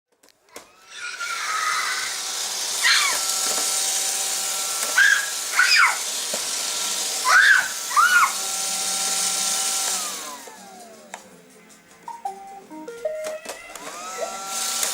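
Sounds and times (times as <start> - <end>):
robot vacuum whirring: 0.5 - 11.1, 13.4 - 14.9.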